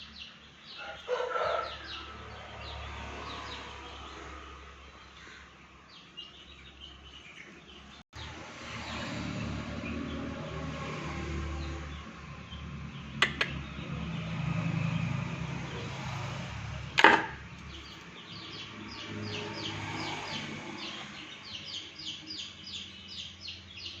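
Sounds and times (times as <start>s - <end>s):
bird chirping: 0.0s - 10.3s, 11.5s - 24.0s
sharp clicks: 13.2s - 13.6s
loud knock: 17.0s - 17.4s.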